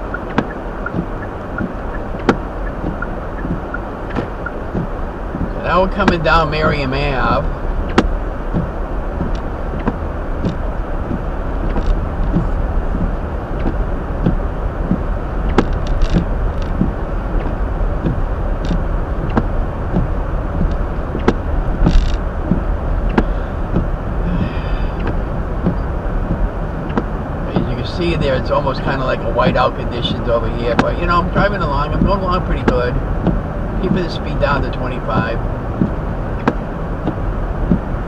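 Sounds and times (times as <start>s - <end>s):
car tyres and engine rumble: 0.0s - 38.0s.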